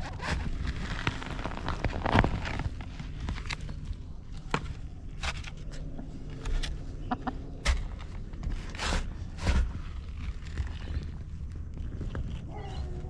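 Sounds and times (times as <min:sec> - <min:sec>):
scratching and rustling: 0:00.0 - 0:13.0
hens clucking: 0:07.0 - 0:07.5.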